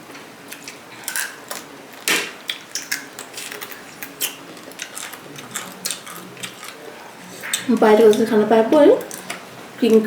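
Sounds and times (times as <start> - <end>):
crab shell cracking: 0.5 - 8.2.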